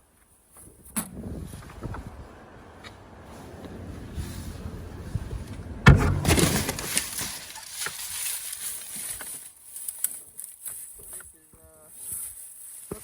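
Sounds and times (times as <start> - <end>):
trash rustling and crackling: 0.2 - 13.0
small clatters: 5.1 - 13.0.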